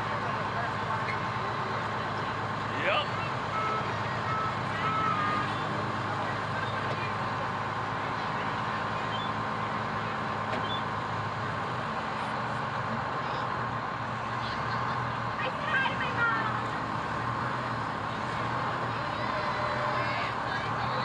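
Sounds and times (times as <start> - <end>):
truck engine running: 0.0 - 21.0.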